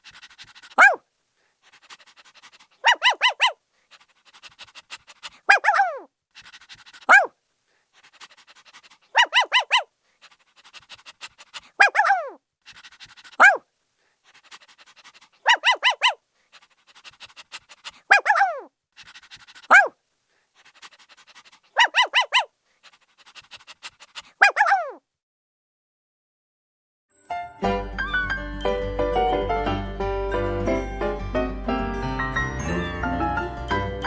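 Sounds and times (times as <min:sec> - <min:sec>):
dog panting: 0:00.0 - 0:01.0, 0:01.6 - 0:07.3, 0:07.9 - 0:13.6, 0:14.2 - 0:19.9, 0:20.6 - 0:25.0
dog whining: 0:00.0 - 0:01.0, 0:01.6 - 0:07.3, 0:08.0 - 0:13.6, 0:14.3 - 0:19.9, 0:20.6 - 0:25.0
small dog yelping: 0:00.0 - 0:01.0, 0:01.6 - 0:07.3, 0:08.0 - 0:13.6, 0:14.3 - 0:19.9, 0:20.6 - 0:25.0.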